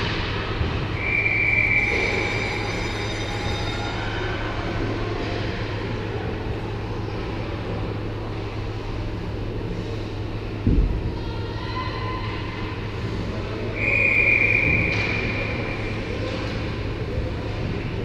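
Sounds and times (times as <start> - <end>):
constant low hum: 0.0 - 18.0
rink and crowd noise: 0.0 - 18.0
high whistle tone: 1.0 - 4.0, 13.8 - 15.9.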